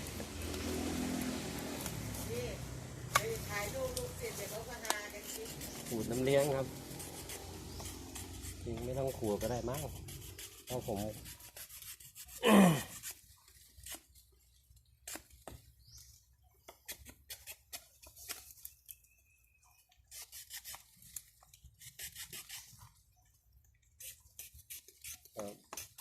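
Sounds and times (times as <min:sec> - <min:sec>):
scraping against bark: 0:00.0 - 0:16.0, 0:19.8 - 0:23.1, 0:23.9 - 0:26.0.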